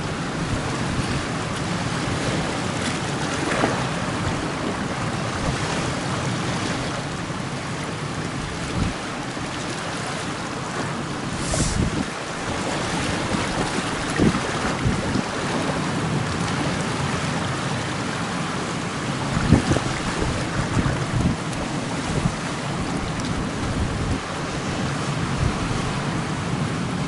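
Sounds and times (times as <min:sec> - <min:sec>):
sea and surf: 0:00.0 - 0:27.0
wind buffeting microphone: 0:08.2 - 0:09.2, 0:11.3 - 0:17.1, 0:19.2 - 0:27.0.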